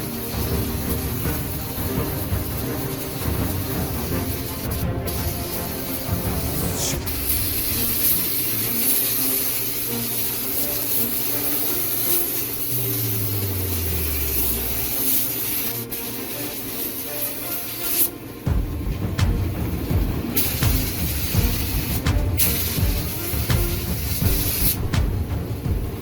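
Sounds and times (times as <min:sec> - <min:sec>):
spray gun hissing: 0:00.0 - 0:26.0.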